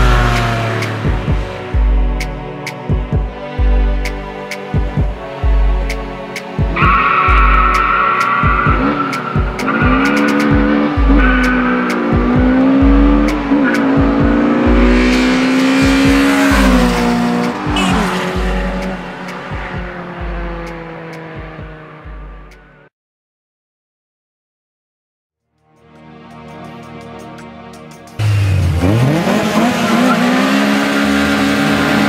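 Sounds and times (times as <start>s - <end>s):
car engines revving hard: 0.0s - 3.0s, 4.1s - 22.8s, 28.2s - 32.0s.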